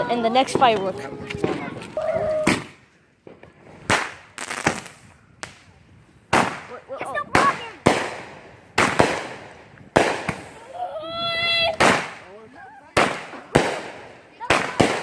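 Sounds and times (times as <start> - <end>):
fireworks bangs with echo: 0.3 - 10.7, 11.5 - 15.0.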